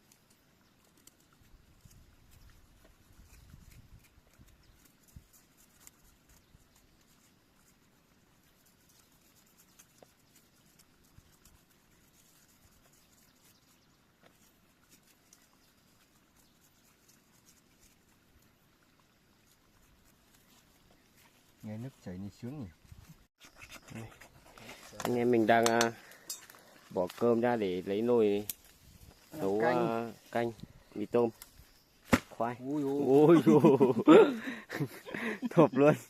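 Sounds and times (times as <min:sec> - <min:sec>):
stream water running: 0:04.0 - 0:22.2.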